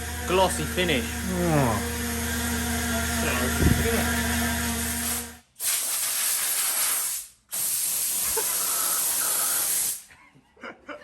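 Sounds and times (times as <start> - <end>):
spray paint hissing: 4.8 - 10.1.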